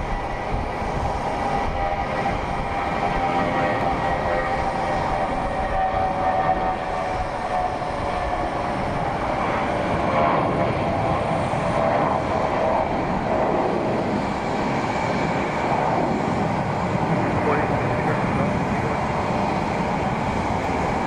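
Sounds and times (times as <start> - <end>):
airliner engines running: 0.0 - 21.0.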